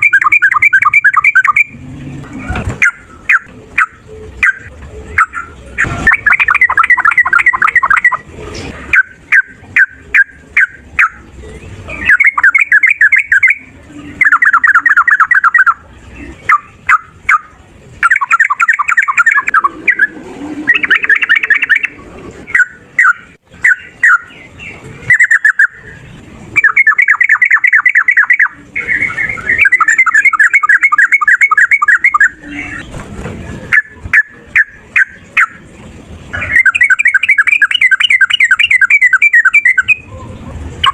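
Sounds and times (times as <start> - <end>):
sharp bird chirps: 0.0 - 1.8, 2.8 - 8.2, 11.9 - 15.8, 16.5 - 20.1, 20.7 - 26.0, 26.6 - 32.8, 36.4 - 40.1
bulbul singing: 0.0 - 1.9, 2.7 - 8.3, 8.9 - 32.9, 33.7 - 40.9.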